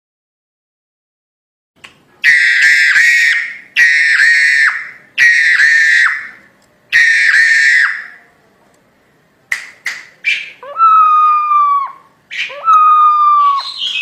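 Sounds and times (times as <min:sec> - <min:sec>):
myna giving harsh calls: 0:02.2 - 0:08.2.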